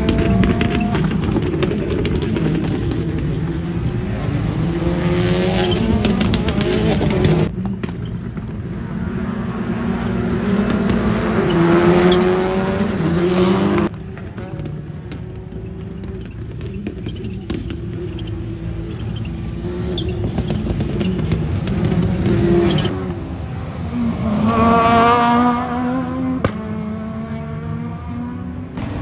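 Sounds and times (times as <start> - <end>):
rally car engines revving: 0.0 - 29.0
exhaust pop: 5.5 - 18.4, 26.2 - 26.8, 28.7 - 29.0.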